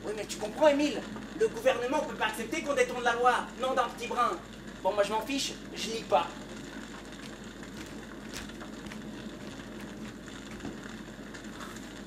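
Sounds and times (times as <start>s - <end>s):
room noise: 0.0s - 12.0s
faint knocks and clicks: 6.8s - 12.0s.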